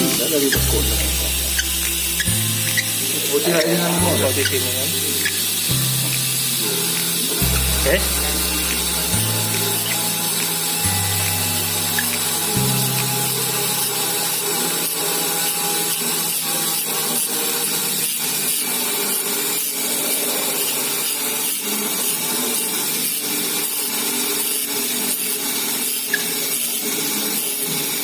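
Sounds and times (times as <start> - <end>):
low hum: 0.0 - 3.4, 4.0 - 14.8
saw rasping on metal ring: 0.0 - 27.8.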